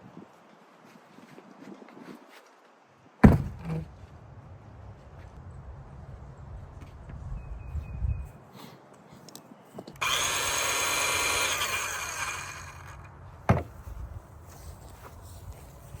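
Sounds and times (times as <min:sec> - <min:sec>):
circular saw whining: 0:10.0 - 0:13.2.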